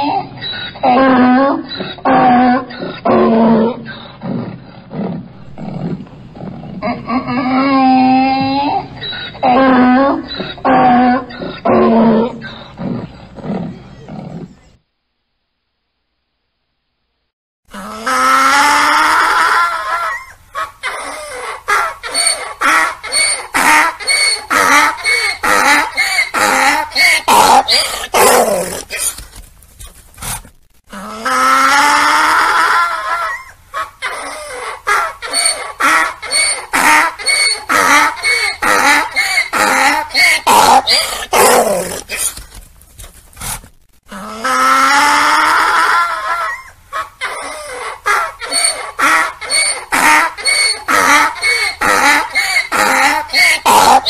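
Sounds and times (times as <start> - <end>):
donkey braying: 5.4 - 14.7, 17.8 - 29.2, 30.9 - 42.6, 44.1 - 54.0.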